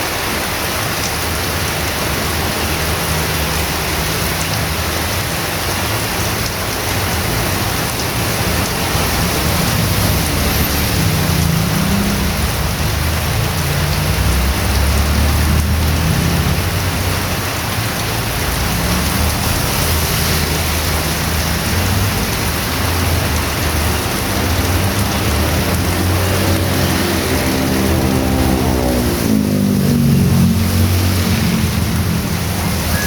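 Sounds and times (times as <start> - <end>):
heavy rain hissing: 0.0 - 33.0
vehicle engine rising in pitch: 24.0 - 33.0.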